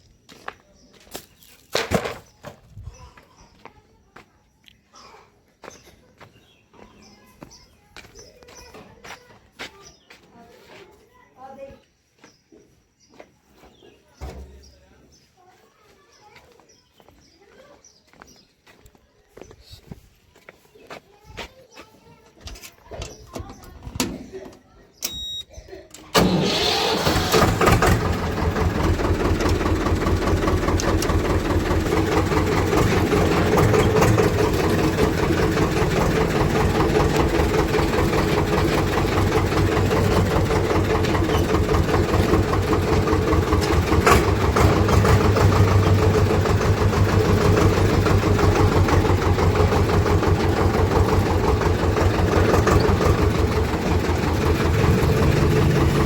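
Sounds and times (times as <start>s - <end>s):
diesel tractor engine chugging: 26.1s - 56.0s.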